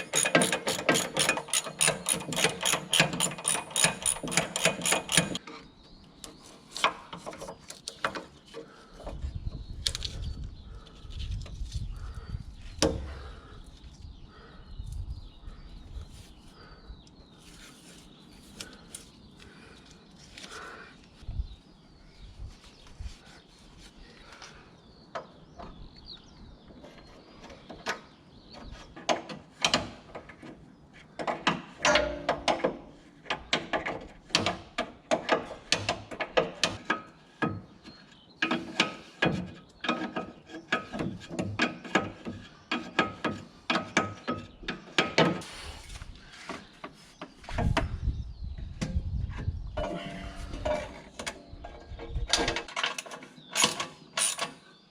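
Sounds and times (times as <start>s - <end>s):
hand tools clicking on metal: 0.0s - 5.4s.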